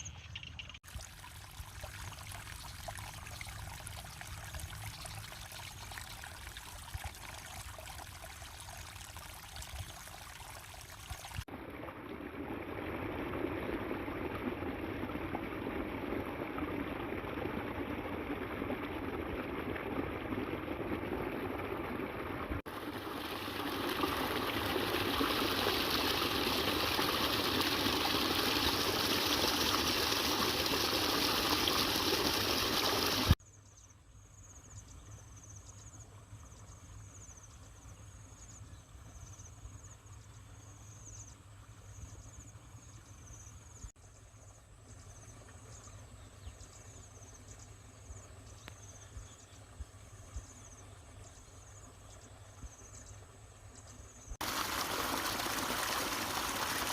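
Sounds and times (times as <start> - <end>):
floodwater rushing: 0.8 - 33.4, 54.4 - 56.9.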